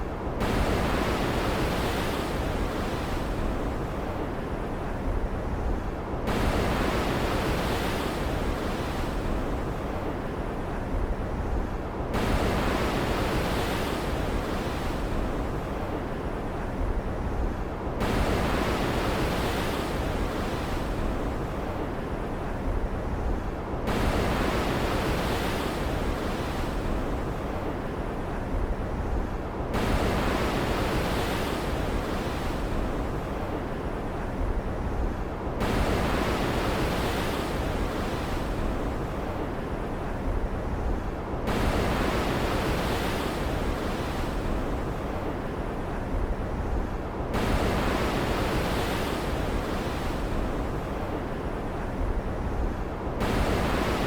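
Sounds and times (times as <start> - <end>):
low rumble of sea: 0.0 - 54.0
waves surging in: 0.0 - 54.0.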